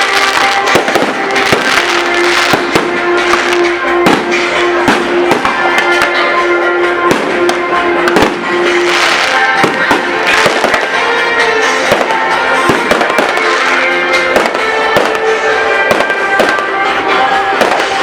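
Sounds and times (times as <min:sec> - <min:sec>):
fireworks popping and crackling: 0:00.0 - 0:06.3, 0:06.9 - 0:18.0
loud music: 0:00.0 - 0:18.0.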